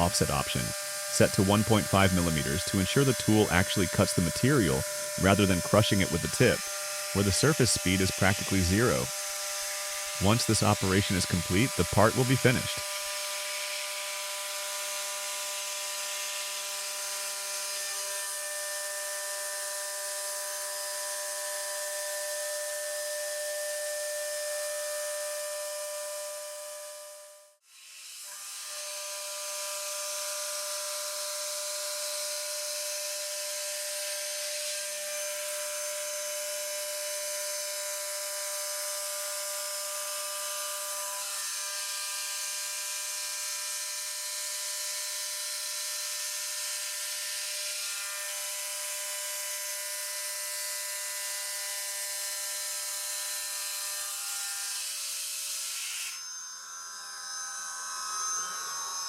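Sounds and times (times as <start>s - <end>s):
cutting hiss: 0.0s - 9.1s, 10.2s - 12.8s
router spindle high whine: 0.0s - 59.0s.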